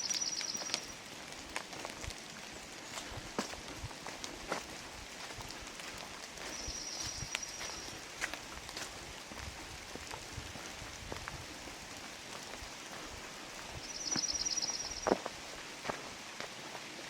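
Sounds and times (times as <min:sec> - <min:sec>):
rain falling in forest: 0:00.0 - 0:17.0
bird trilling: 0:13.8 - 0:15.0.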